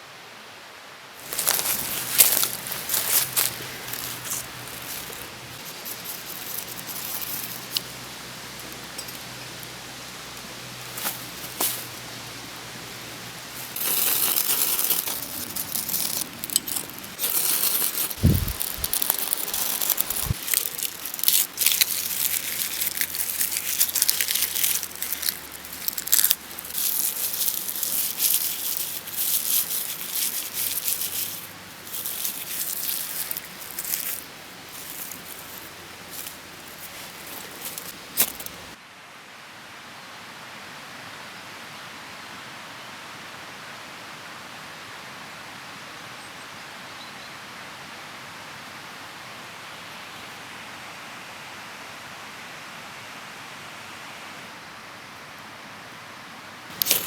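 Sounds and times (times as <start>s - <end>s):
crinkling and rustling: 1.2s - 38.8s, 56.7s - 57.0s.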